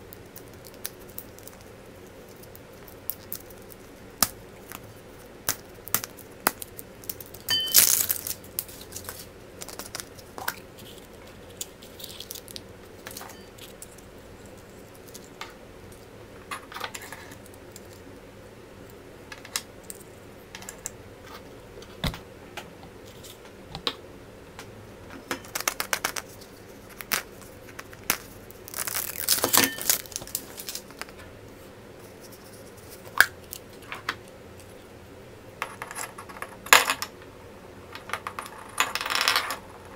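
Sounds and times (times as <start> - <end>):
wrappers crinkling and tearing: 6.0 - 13.8, 25.6 - 31.1.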